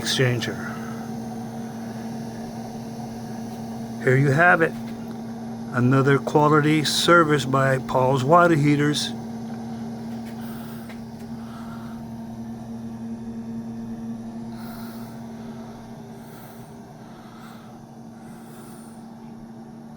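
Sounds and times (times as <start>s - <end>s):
electric pump humming: 0.0s - 19.9s.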